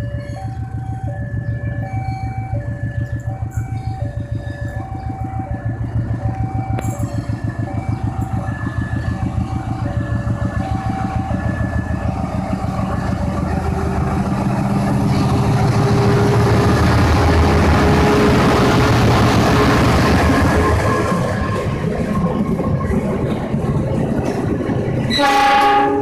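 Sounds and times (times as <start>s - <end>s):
electronic alternating tone signal: 0.0s - 23.0s
locomotive engine throbbing: 0.0s - 26.0s.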